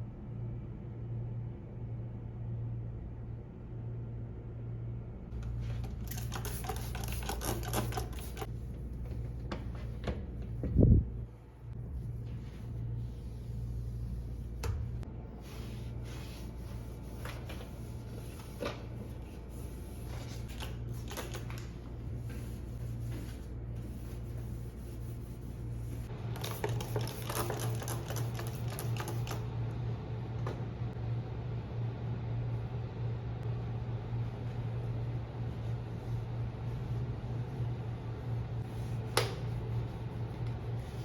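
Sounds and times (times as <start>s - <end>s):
low mechanical hum: 0.0s - 41.0s.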